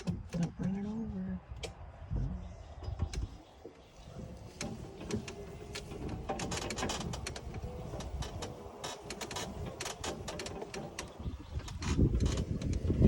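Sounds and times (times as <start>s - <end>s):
clicks and rattles from vehicle body: 0.0s - 0.8s, 2.8s - 13.0s
small vehicle driving over rough ground: 2.8s - 13.0s.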